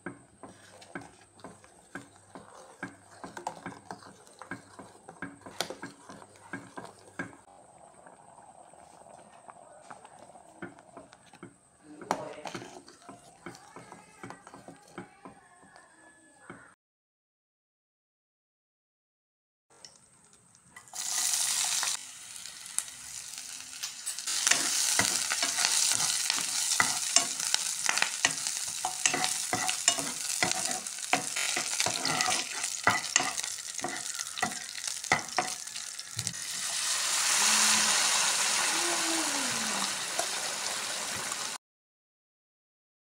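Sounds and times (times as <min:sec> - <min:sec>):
food sizzling in oil: 0:00.0 - 0:07.5, 0:20.7 - 0:41.6
spatula scraping a pan: 0:00.0 - 0:07.5, 0:10.5 - 0:15.4, 0:22.8 - 0:36.3
curry bubbling: 0:00.0 - 0:15.7, 0:24.1 - 0:37.9.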